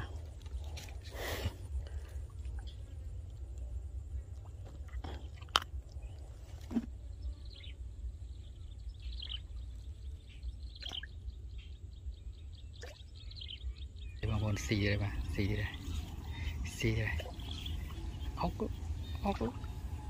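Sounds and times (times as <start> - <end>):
low steady rumble: 0.0 - 20.0
bird chirping: 7.0 - 20.0.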